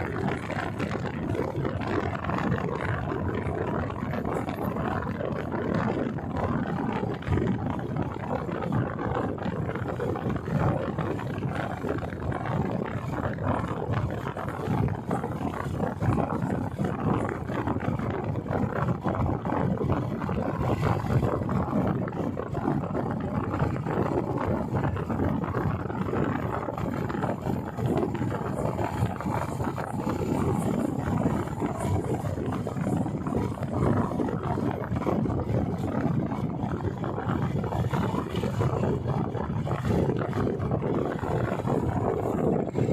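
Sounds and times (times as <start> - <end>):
motorcycle engine rumbling: 0.0 - 42.9
wind buffeting microphone: 0.0 - 42.9.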